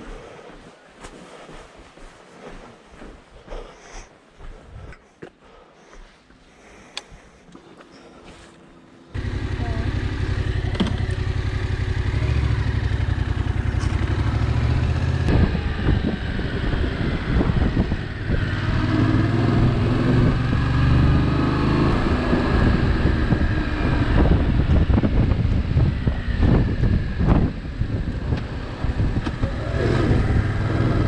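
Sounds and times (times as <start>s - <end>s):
motorcycle engine drone: 9.1s - 31.0s
wind on microphone: 12.9s - 31.0s.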